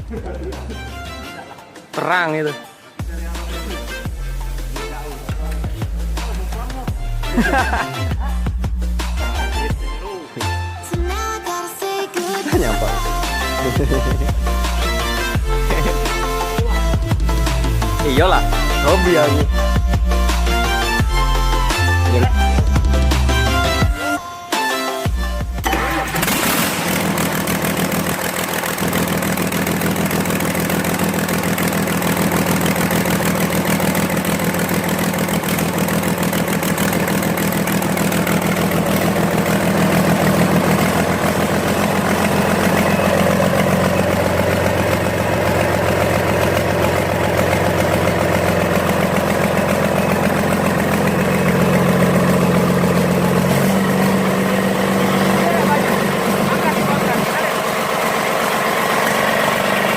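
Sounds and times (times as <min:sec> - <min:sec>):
diesel engine running: 0:12.5 - 0:24.2, 0:25.1 - 0:59.9.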